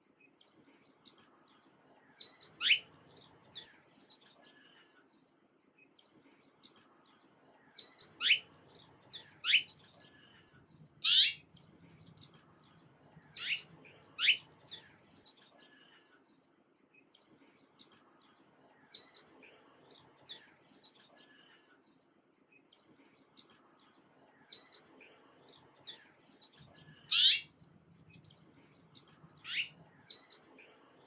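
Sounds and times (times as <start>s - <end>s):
faint high bird twittering: 2.1s - 4.5s, 7.6s - 10.4s, 11.0s - 12.6s, 13.2s - 16.0s, 24.4s - 30.8s.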